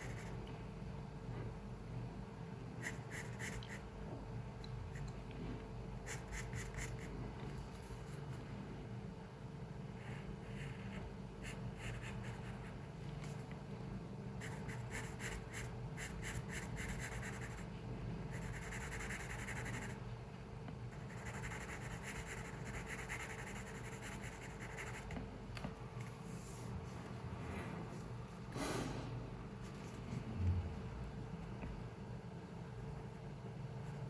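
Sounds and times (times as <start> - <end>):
pencil scratching on paper: 0.0 - 0.4, 10.0 - 12.8, 14.4 - 17.6, 18.3 - 20.0, 20.9 - 25.2
steady low hum: 0.0 - 34.0.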